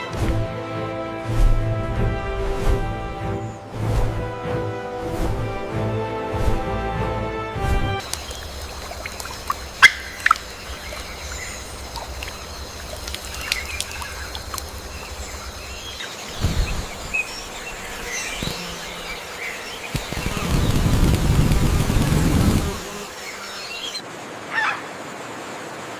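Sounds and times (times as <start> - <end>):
steady outdoor background: 0.0 - 25.9
birds calling: 8.0 - 25.0.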